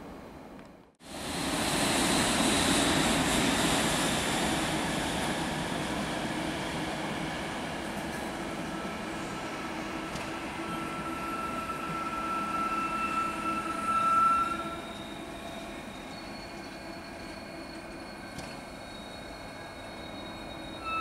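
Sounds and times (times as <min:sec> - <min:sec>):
train wheel and running noise: 0:00.5 - 0:21.0
faint high squeal: 0:10.4 - 0:21.0.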